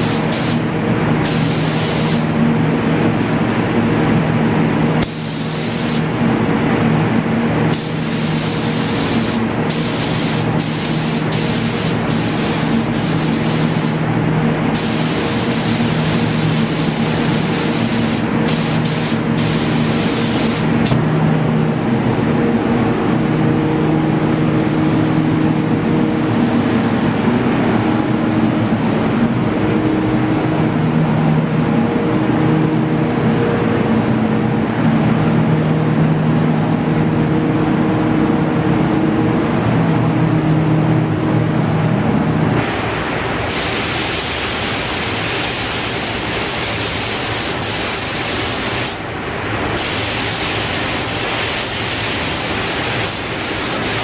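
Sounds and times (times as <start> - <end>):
paint spraying hiss: 0.0 - 2.3, 5.0 - 6.2, 7.7 - 14.0, 14.7 - 21.0, 43.5 - 49.1, 49.7 - 54.0.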